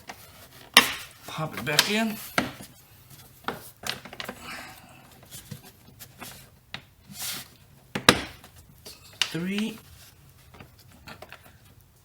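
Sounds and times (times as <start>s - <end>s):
plastic clicks and rustles: 7.9s - 11.9s.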